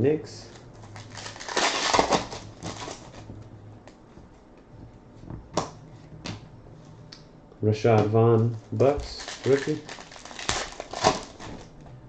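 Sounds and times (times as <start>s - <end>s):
cards rustling: 0.5s - 3.4s, 8.8s - 11.7s.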